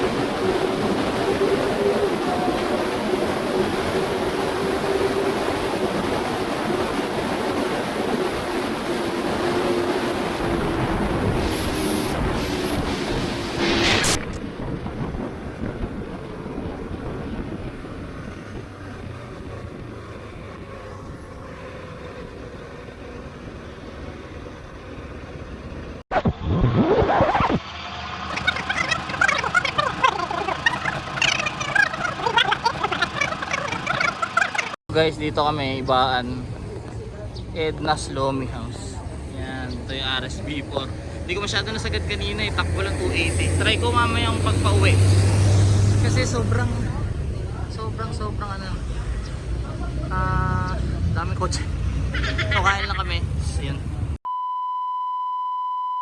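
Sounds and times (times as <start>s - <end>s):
wind rushing: 0.0s - 21.4s, 40.9s - 47.7s
motorcycle engine and wind noise: 14.2s - 26.0s
motorcycle engine revving: 40.4s - 48.3s
motorcycle engine steady note: 41.5s - 45.2s.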